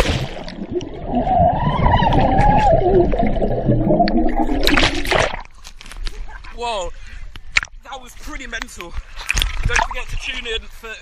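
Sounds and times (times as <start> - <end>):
water splashing: 0.0 - 6.3, 9.1 - 10.4
underwater bubbling and gurgling: 0.0 - 6.5.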